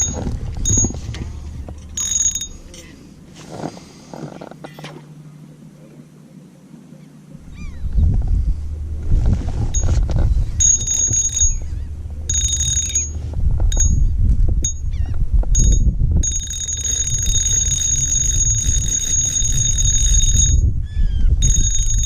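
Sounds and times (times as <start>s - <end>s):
electronic beeping alarm: 0.0s - 2.8s, 9.7s - 14.9s, 15.6s - 20.7s, 21.4s - 22.0s
low rumble: 0.0s - 4.1s, 7.3s - 22.0s.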